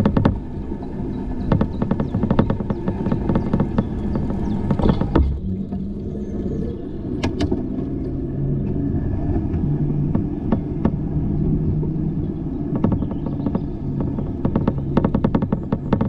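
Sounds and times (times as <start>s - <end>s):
rapid even ticks: 1.4s - 5.3s.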